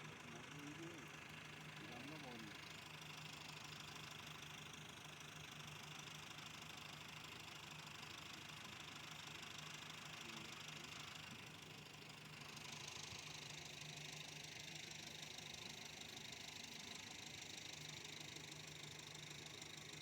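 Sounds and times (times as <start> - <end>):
faint engine hum: 0.0 - 6.6.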